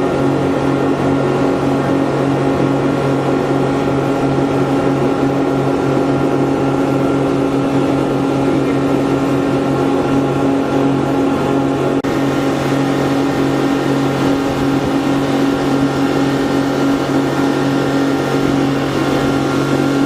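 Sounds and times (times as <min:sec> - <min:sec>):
speedboat engine running: 0:00.0 - 0:20.0.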